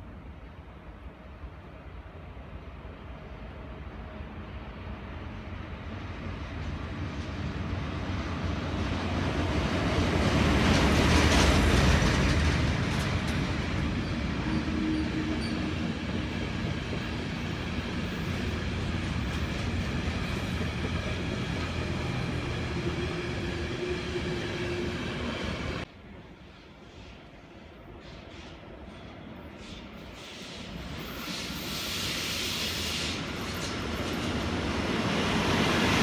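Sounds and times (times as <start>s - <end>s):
electric locomotive passing: 0.8s - 36.0s
wagon wheels rumbling on rail: 6.6s - 25.8s.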